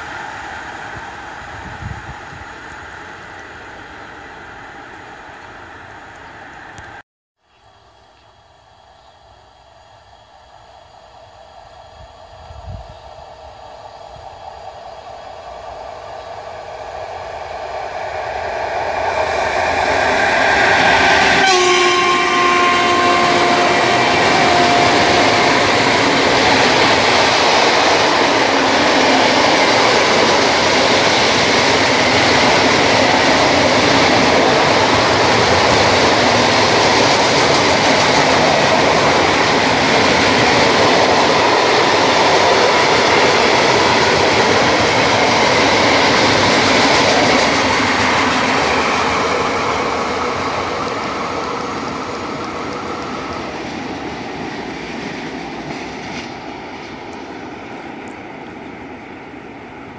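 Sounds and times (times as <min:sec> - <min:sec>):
freight train wheel noise: 0:00.0 - 0:59.9
locomotive horn blast: 0:21.3 - 0:25.9
wheels clacking over rail joints: 0:23.5 - 0:53.8.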